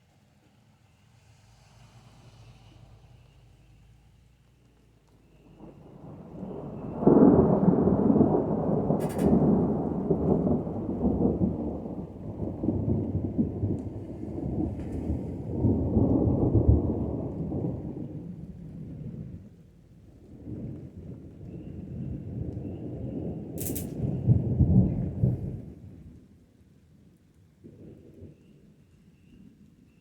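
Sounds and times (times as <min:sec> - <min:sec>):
thunder rolling: 0:05.0 - 0:26.3.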